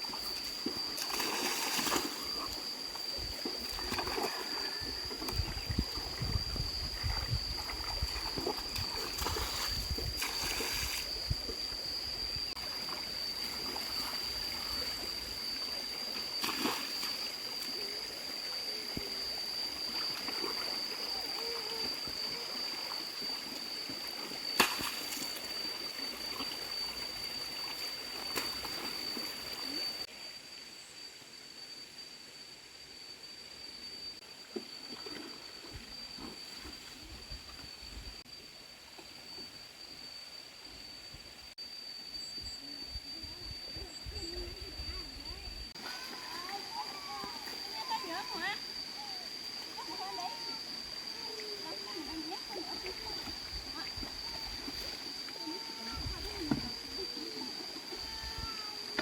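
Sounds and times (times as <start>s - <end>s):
water splashing and trickling: 0.0s - 11.6s, 51.4s - 58.7s.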